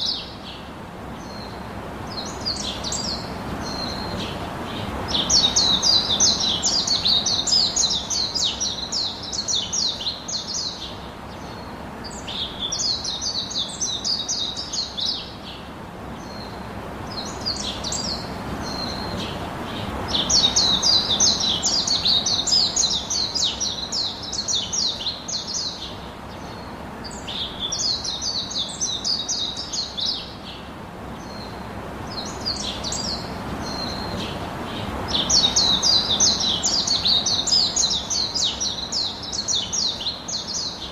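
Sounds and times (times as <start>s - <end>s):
songbird singing: 0.0s - 40.9s.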